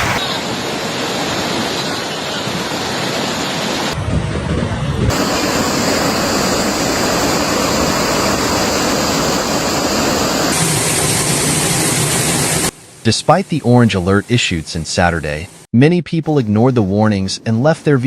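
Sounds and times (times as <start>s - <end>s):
rushing floodwater: 0.0s - 4.0s, 5.0s - 15.4s.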